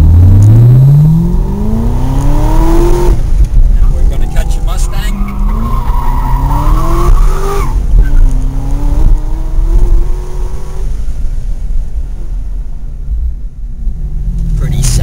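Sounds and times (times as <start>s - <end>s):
car engine accelerating hard: 0.0s - 11.7s
tires squealing: 3.8s - 8.5s.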